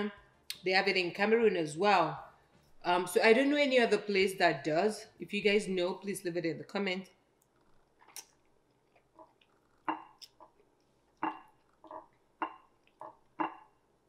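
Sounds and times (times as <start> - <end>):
chewing and lip-smacking: 7.4 - 13.6.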